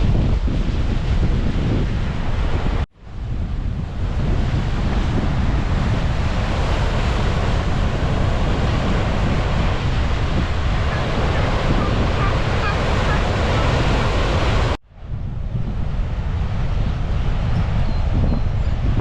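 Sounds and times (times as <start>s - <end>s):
ocean surf: 0.0s - 15.1s
wind buffeting microphone: 0.0s - 19.0s.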